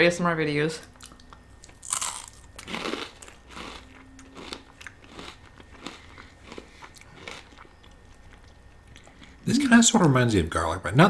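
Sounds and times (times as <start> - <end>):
crisp chip crunches: 1.0 - 8.5
wet chewing: 1.0 - 9.4.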